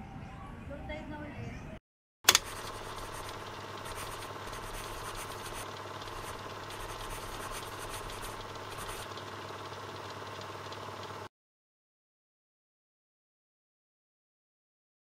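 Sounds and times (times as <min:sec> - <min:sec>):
steady machine hum: 0:02.3 - 0:11.3.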